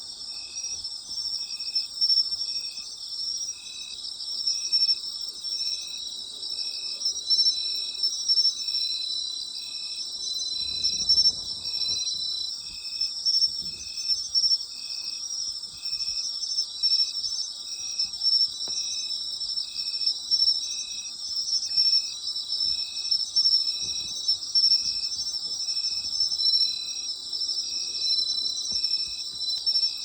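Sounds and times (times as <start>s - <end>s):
insect chirping rhythmically: 0.0s - 30.0s
insects trilling: 0.2s - 30.0s.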